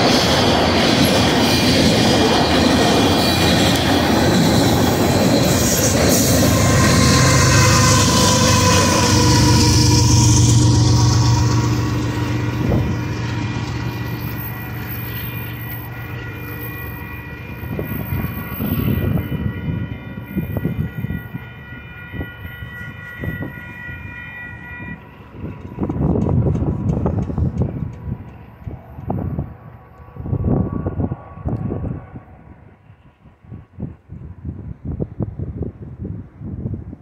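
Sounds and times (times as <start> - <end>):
diesel locomotive passing: 0.0 - 37.0
wind buffeting microphone: 0.0 - 37.0
distant locomotive horn: 4.9 - 27.1.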